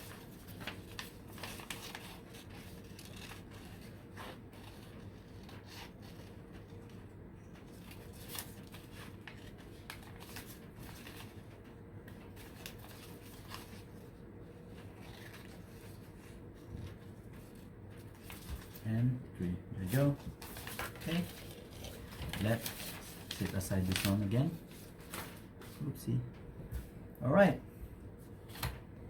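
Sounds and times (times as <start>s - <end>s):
paper rustling: 0.0s - 7.0s, 7.6s - 19.2s, 19.8s - 26.0s
scissors snipping paper: 2.8s - 3.8s.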